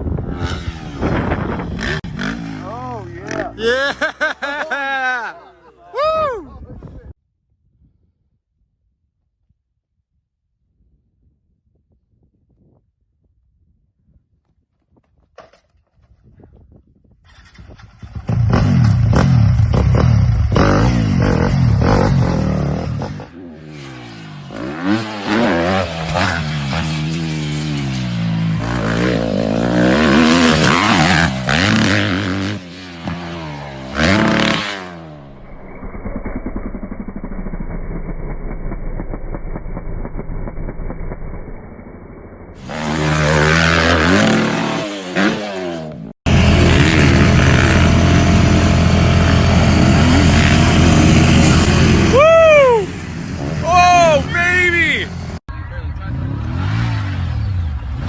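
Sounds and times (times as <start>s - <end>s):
dirt bike engines revving: 0.1s - 6.6s, 17.4s - 40.1s, 42.6s - 58.0s.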